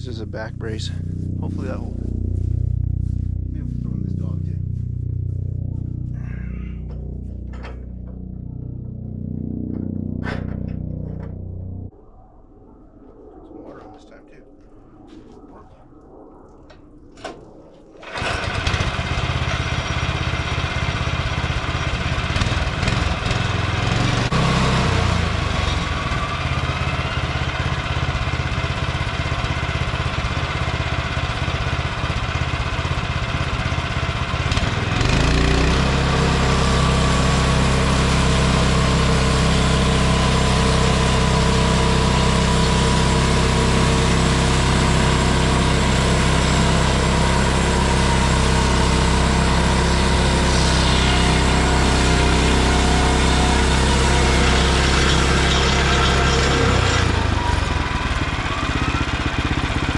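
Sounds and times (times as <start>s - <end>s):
small gasoline engine running: 18.0s - 59.9s.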